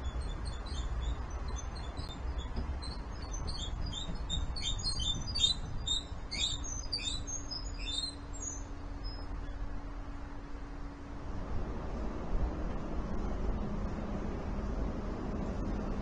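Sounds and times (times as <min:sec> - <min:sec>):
small birds chirping: 0:00.0 - 0:09.6
faint low hum: 0:00.0 - 0:16.0
low outdoor rumble: 0:00.0 - 0:16.0.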